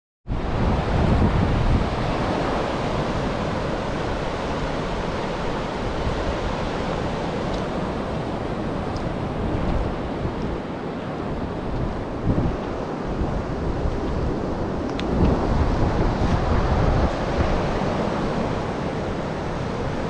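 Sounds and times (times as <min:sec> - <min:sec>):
ocean surf: 0:00.3 - 0:20.0
wind buffeting microphone: 0:00.3 - 0:20.0
wind rushing: 0:11.3 - 0:20.0.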